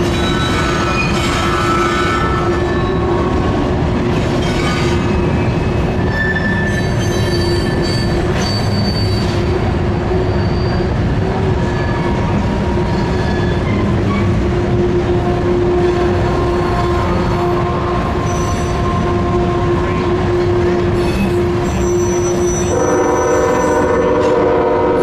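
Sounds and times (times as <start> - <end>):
freight train wheels rumbling: 0.0 - 25.0
high wheel squealing: 21.0 - 23.8.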